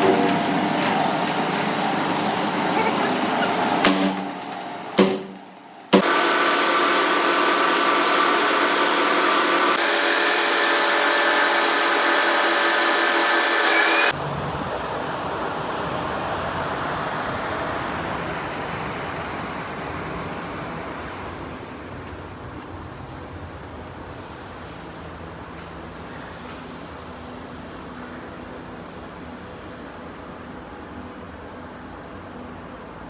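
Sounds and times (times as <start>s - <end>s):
deep machinery rumble: 0.0s - 14.3s
factory machinery whine: 0.0s - 21.1s.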